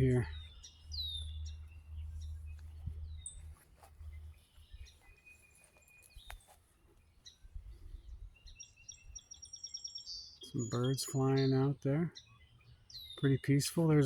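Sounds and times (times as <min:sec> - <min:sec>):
bird chirps and whistled calls: 0:08.0 - 0:13.7.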